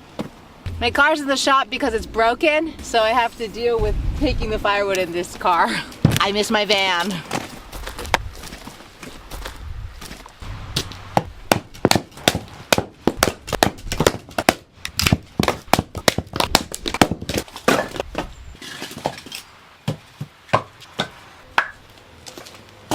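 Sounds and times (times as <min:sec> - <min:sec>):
low rumble: 0:00.6 - 0:05.5, 0:09.4 - 0:11.5.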